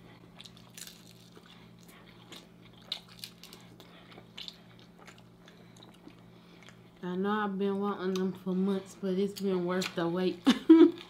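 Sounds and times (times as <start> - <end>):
chewing with mouth smacks: 0.0 - 7.0
faint low hum: 0.0 - 11.0.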